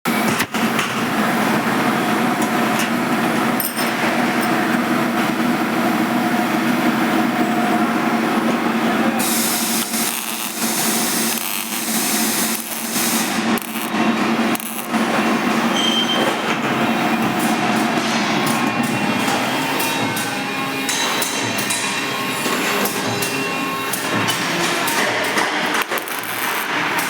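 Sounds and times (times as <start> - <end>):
power tool humming: 9.2 - 15.8.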